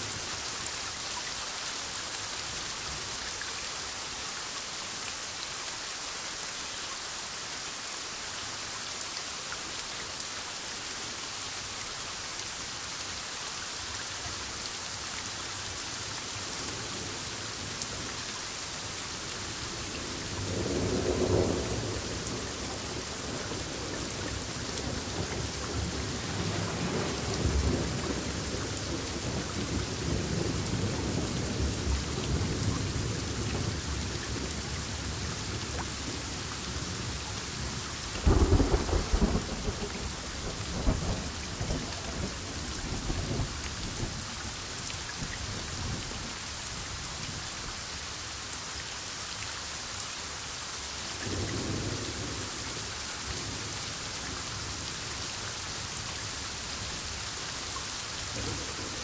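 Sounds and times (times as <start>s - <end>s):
heavy rain falling: 0.0s - 59.0s
rolling thunder rumble: 38.2s - 44.1s.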